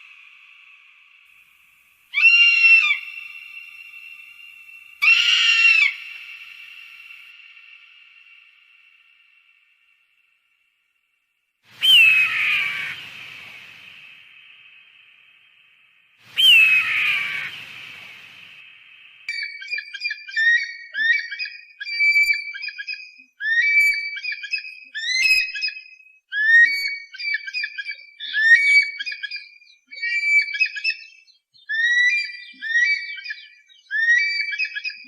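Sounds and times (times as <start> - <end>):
bird of prey screaming: 2.1 - 3.2, 5.0 - 6.6, 11.8 - 13.2, 16.4 - 17.6
high whistled bird calls: 2.1 - 8.6, 11.7 - 15.1, 16.2 - 35.0.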